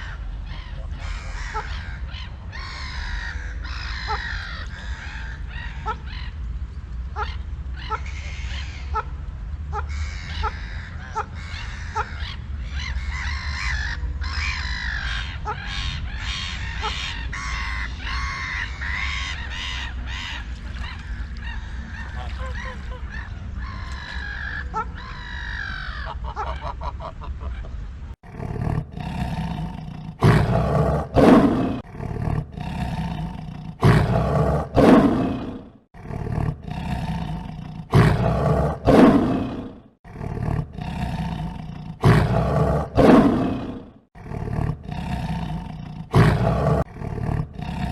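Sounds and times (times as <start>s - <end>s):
birds honking: 7.2s - 27.2s
lion roaring: 28.2s - 47.9s.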